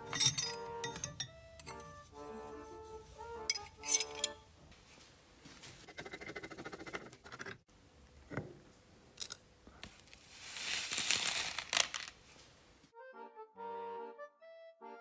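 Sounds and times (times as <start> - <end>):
music: 0.0 - 4.6, 12.9 - 15.0.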